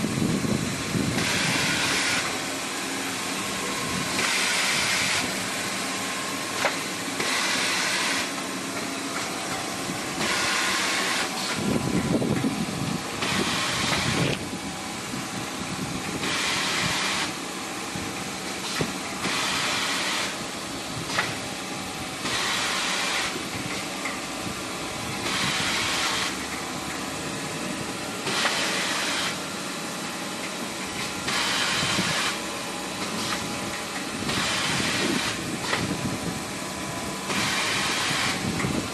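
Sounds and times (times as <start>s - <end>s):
machine hum: 0.0s - 38.9s
saw blade hissing through paper: 28.3s - 29.4s, 31.3s - 32.4s.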